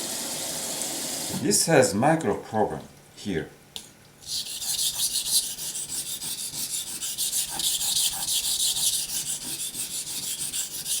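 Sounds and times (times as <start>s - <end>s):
knife on wet whetstone: 4.2s - 11.0s.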